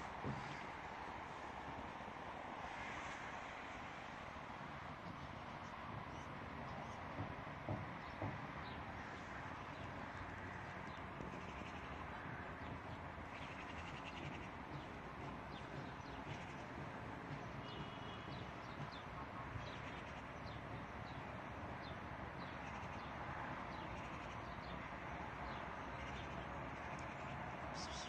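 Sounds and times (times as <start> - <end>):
small birds chirping: 17.4 - 28.0.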